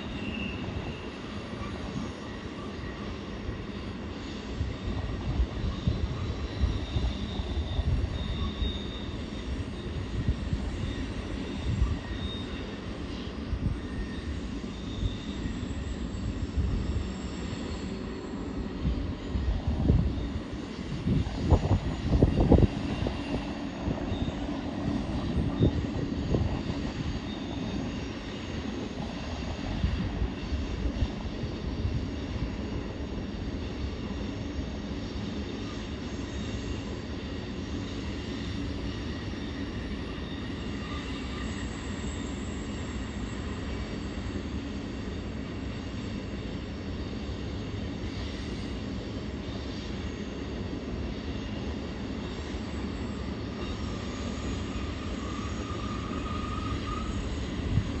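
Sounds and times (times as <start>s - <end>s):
distant freight train rumble: 0.0s - 58.0s.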